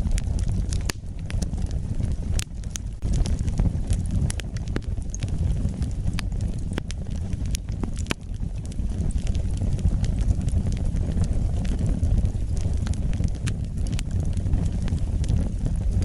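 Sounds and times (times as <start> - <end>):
wood fire crackling and rumbling: 0.0 - 16.0.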